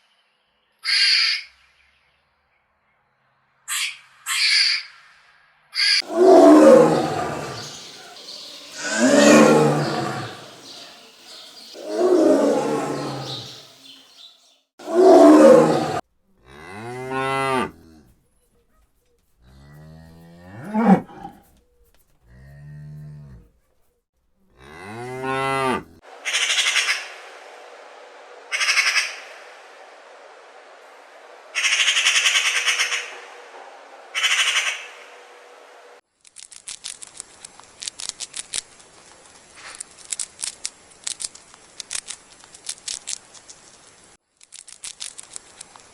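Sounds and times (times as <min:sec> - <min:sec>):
rough animal calls: 0:05.8 - 0:14.2, 0:14.8 - 0:16.0, 0:20.5 - 0:21.5
cattle mooing: 0:06.0 - 0:13.6, 0:14.8 - 0:17.9
faint clicks: 0:36.2 - 0:45.9.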